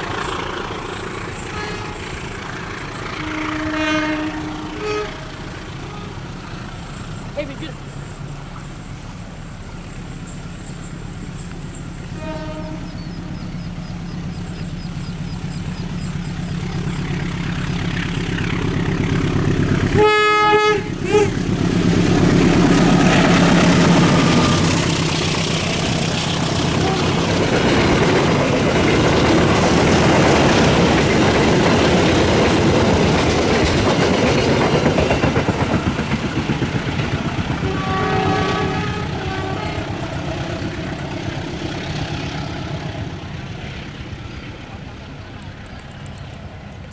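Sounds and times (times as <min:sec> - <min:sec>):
diesel locomotive engine hum: 0:00.0 - 0:46.9
train wheels on rails: 0:00.0 - 0:46.9
train horn blast: 0:01.1 - 0:07.0, 0:12.0 - 0:13.6, 0:18.5 - 0:28.4, 0:37.6 - 0:40.8.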